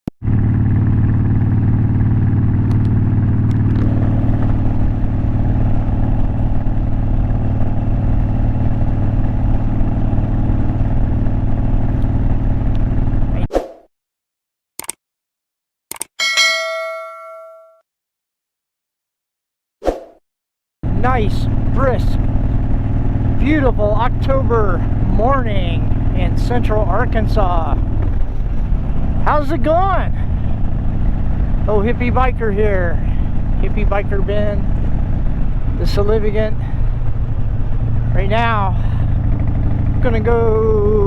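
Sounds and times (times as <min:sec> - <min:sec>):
motorcycle engine running: 0:00.2 - 0:13.5, 0:20.8 - 0:41.0
sharp clicks: 0:14.8 - 0:15.0, 0:15.9 - 0:16.2
bell-like ding: 0:16.2 - 0:17.8.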